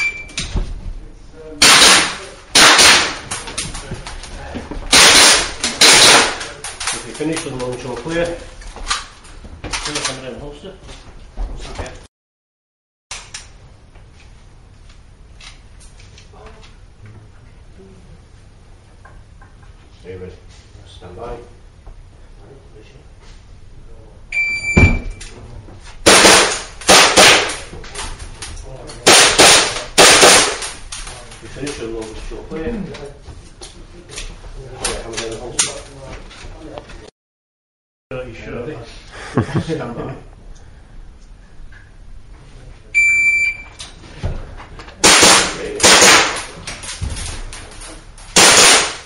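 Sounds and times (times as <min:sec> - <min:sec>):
shot timer beep: 0:00.0 - 0:00.4, 0:24.4 - 0:25.2, 0:43.0 - 0:43.8
pistol shots: 0:01.6 - 0:03.2, 0:04.9 - 0:06.4, 0:26.1 - 0:27.6, 0:29.0 - 0:30.7, 0:45.0 - 0:46.5, 0:48.4 - 0:49.0
pistol shots echoing: 0:29.1 - 0:30.6, 0:45.0 - 0:46.5, 0:48.4 - 0:49.0.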